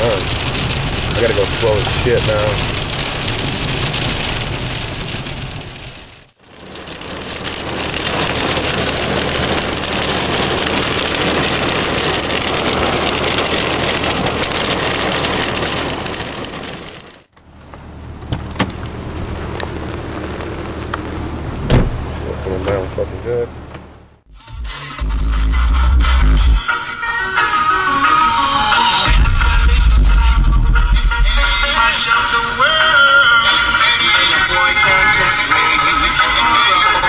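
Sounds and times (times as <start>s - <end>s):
car engine hum: 0.0s - 26.8s.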